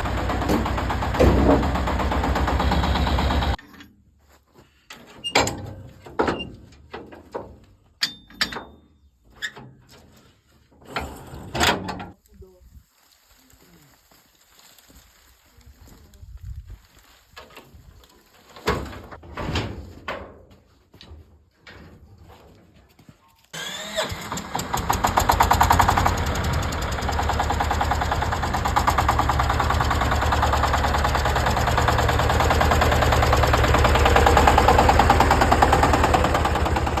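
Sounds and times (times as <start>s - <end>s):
knocks and clunks: 0.0s - 3.8s
tractor engine starting and chugging: 0.0s - 3.8s, 23.6s - 37.0s.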